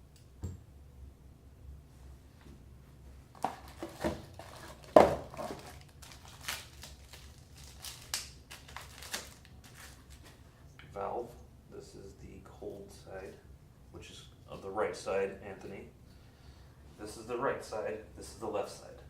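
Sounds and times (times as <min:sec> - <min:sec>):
packaging crinkling and rustling: 0:03.3 - 0:10.4.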